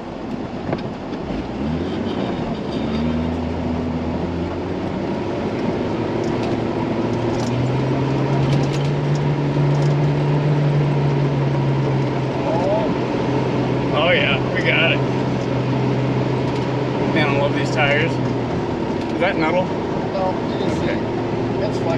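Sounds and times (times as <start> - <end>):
truck engine pulling under load: 2.8 - 19.9.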